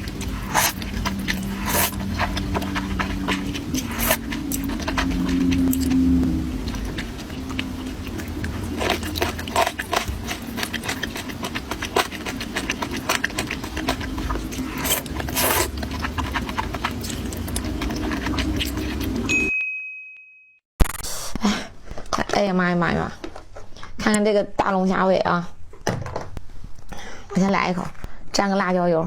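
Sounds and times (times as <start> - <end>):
crunchy chewing: 0.0 - 19.3
steady low hum: 0.0 - 19.3
brief high beep: 19.3 - 20.6.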